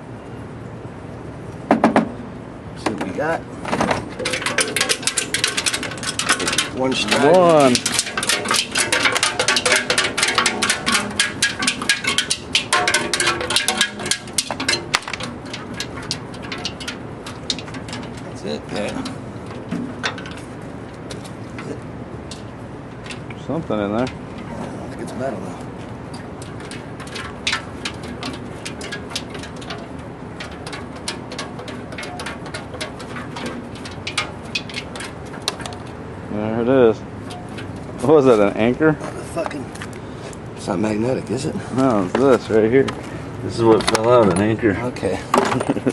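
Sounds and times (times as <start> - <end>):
screws rattling in metal tank: 3.7 - 36.3, 36.9 - 39.7.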